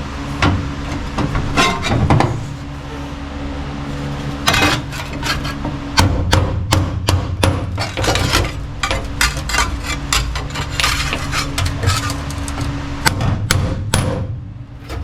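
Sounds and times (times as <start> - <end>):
low hum: 0.0 - 15.0
hammer striking sheet metal: 13.0 - 14.3.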